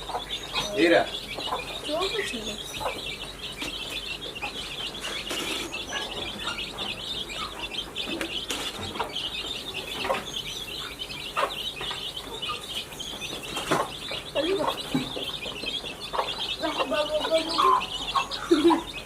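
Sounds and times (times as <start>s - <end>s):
birds chirping: 0.0s - 19.0s
chickens clucking: 0.0s - 19.0s.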